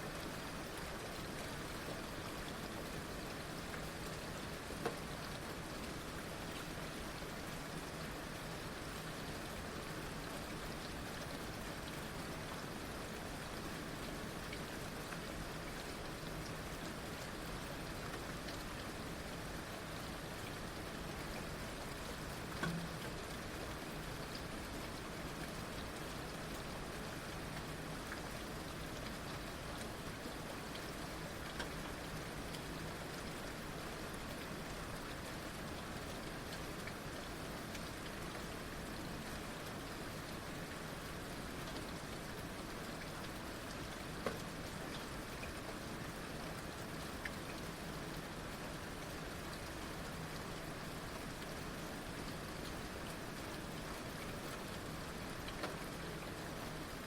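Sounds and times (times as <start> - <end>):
heavy rain: 0.0 - 57.0
rain drop striking close by: 20.6 - 57.0.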